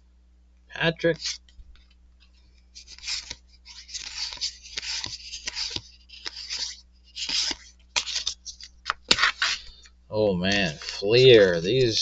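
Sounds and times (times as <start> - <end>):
cards and wrapper crinkling: 2.8 - 9.9.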